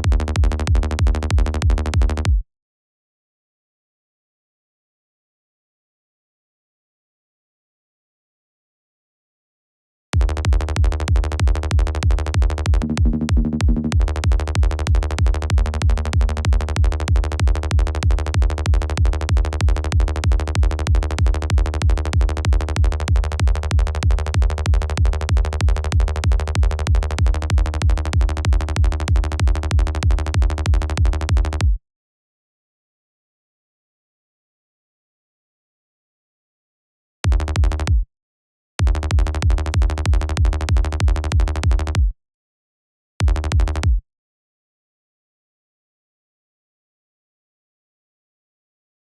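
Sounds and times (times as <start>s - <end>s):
electronic kick drum: 0.0s - 2.4s, 10.2s - 31.8s, 37.3s - 38.1s, 38.8s - 42.1s, 43.2s - 44.0s
synth bass: 0.0s - 2.4s, 10.2s - 31.8s, 37.3s - 38.0s, 38.8s - 42.1s, 43.2s - 44.0s.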